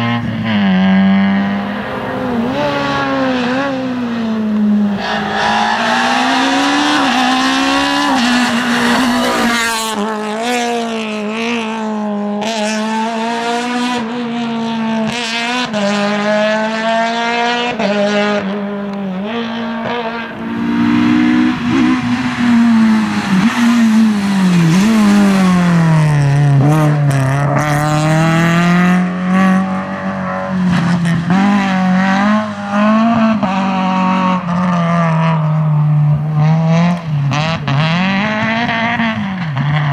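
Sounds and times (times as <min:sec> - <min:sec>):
rally car engine revving: 0:00.0 - 0:39.9.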